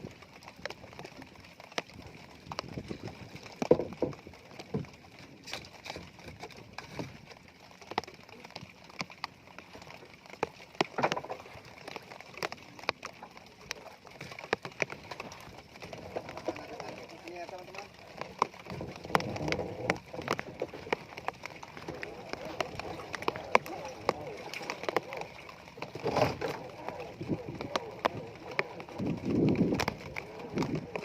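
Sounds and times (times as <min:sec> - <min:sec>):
fishing gear knocking and clicking: 0:10.8 - 0:13.1, 0:18.1 - 0:31.0
rain hissing: 0:15.6 - 0:31.0.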